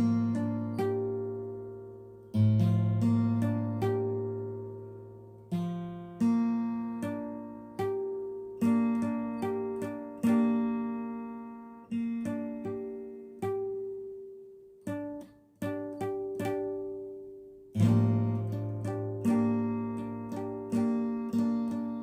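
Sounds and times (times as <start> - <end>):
guitar strummed and plucked: 0.0 - 22.0.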